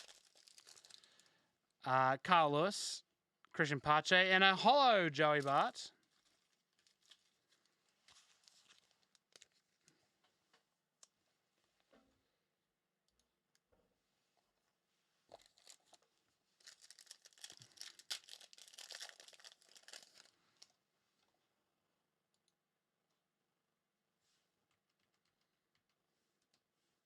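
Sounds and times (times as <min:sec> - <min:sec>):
foil wrapper tearing and crinkling: 0:00.0 - 0:01.3, 0:05.4 - 0:09.6, 0:16.6 - 0:20.7.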